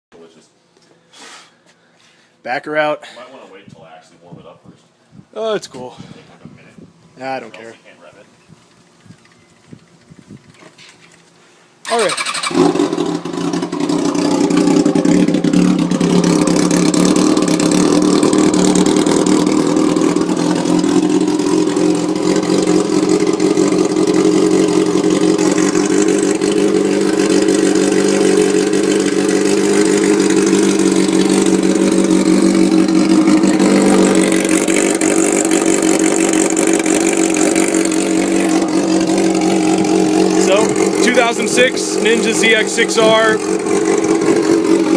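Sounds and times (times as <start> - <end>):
motorcycle engine idling loudly: 11.9 - 44.9.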